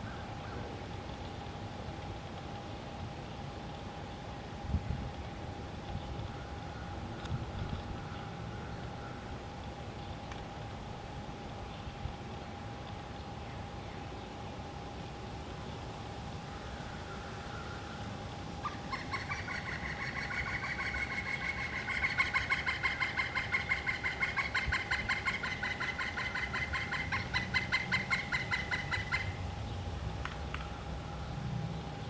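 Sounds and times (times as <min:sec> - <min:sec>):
faint steady hum: 0:00.0 - 0:32.0
woodpecker calling: 0:18.6 - 0:31.3.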